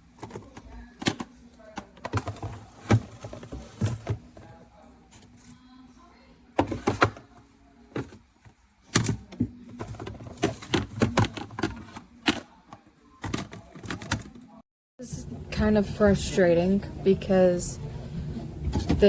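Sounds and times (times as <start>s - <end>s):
plastic bins knocking and clattering: 0.1s - 5.3s, 6.6s - 12.6s, 13.2s - 14.5s, 18.6s - 19.0s.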